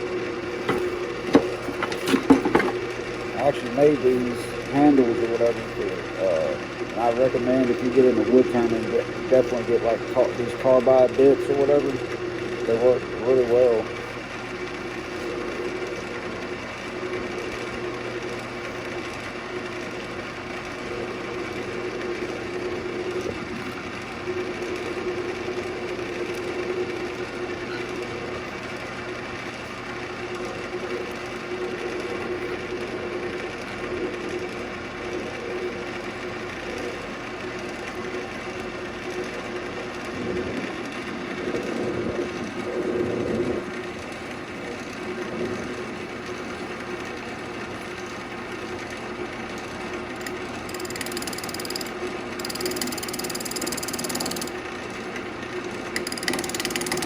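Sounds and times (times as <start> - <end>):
lathe motor hum: 0.0 - 57.0
turning tool cutting wood: 0.5 - 9.6, 50.1 - 54.6, 55.9 - 57.0
turning tool scraping wood: 0.6 - 2.9, 56.0 - 57.0.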